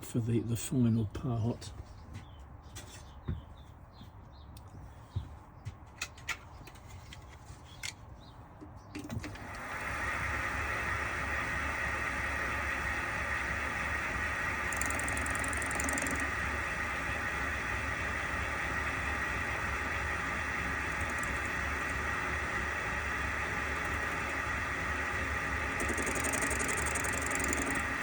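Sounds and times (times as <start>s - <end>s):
metal lathe whining: 9.3s - 28.0s.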